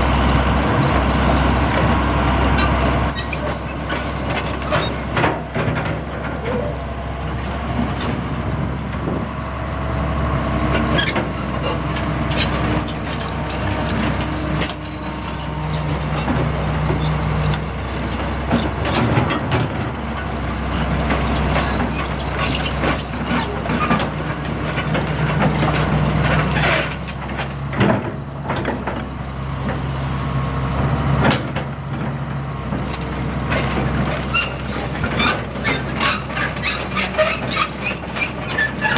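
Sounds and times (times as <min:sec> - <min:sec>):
excavator diesel engine: 0:00.0 - 0:38.9
metal parts clanking and squealing: 0:02.6 - 0:08.2, 0:10.9 - 0:19.6, 0:21.1 - 0:27.5, 0:33.0 - 0:38.9.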